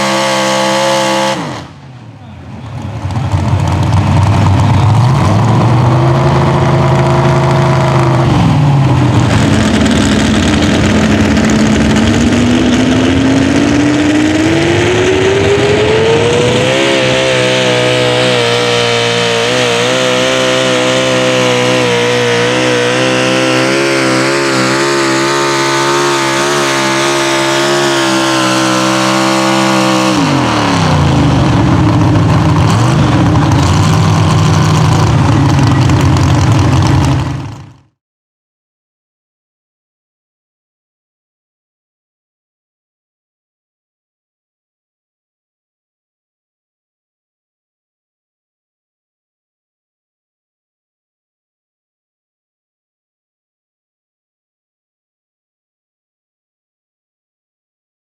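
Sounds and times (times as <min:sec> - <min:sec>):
truck engine revving at full throttle: 0:00.0 - 0:37.9.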